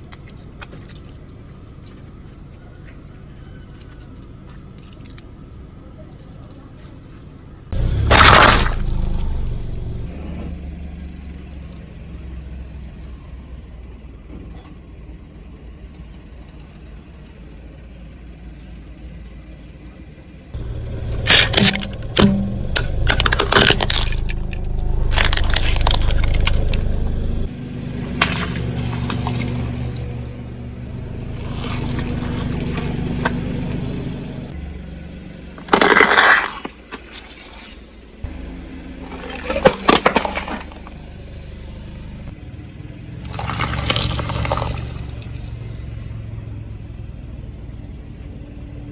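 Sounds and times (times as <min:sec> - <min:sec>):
car engine running: 0:07.7 - 0:10.5, 0:20.6 - 0:36.0, 0:38.3 - 0:46.8
tyre crushing objects: 0:07.8 - 0:10.1, 0:20.6 - 0:27.5.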